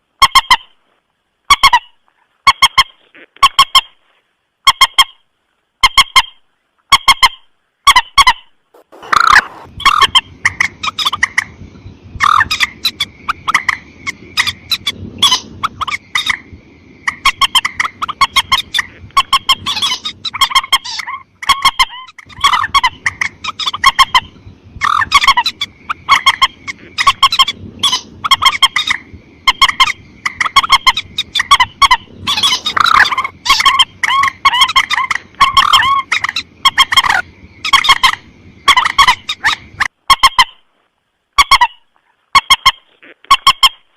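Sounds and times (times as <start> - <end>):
rail bird calls: 5.8 - 40.6.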